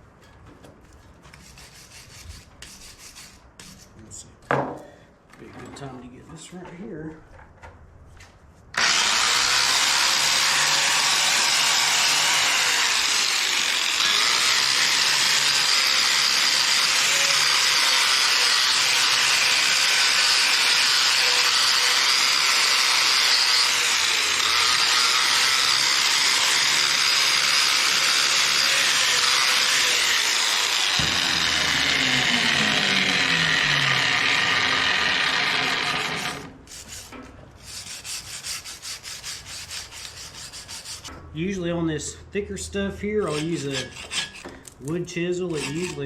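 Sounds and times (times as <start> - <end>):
power tool grinding metal: 8.8 - 41.0, 45.4 - 46.0.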